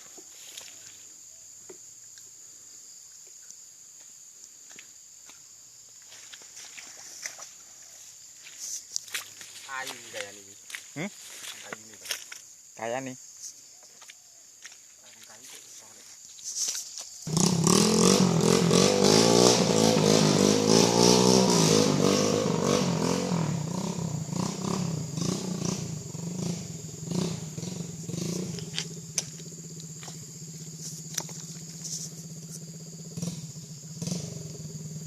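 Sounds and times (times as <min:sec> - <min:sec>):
engine running: 0:17.3 - 0:35.0.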